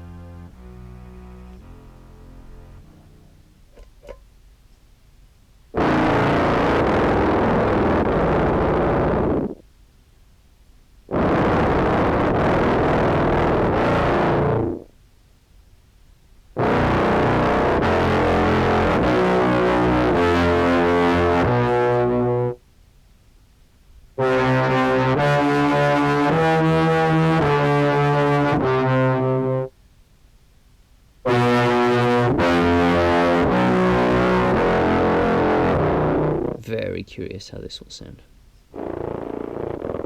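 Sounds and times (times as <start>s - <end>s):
deep buzzy contrabass clarinet: 0.0s - 4.2s, 5.8s - 9.6s, 11.1s - 14.9s, 16.6s - 22.6s, 24.2s - 29.7s, 31.3s - 36.6s, 38.7s - 40.0s.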